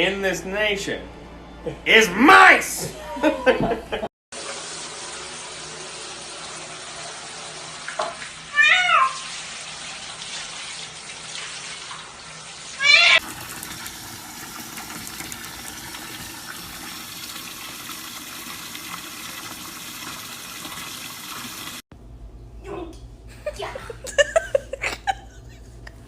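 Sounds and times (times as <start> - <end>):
short pitched cry: 8.5 - 9.2, 12.8 - 13.2.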